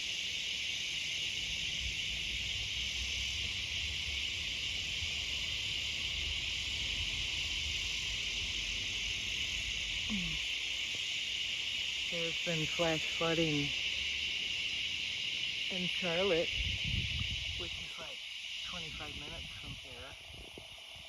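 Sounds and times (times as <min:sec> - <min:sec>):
cicadas droning: 0:00.0 - 0:21.0.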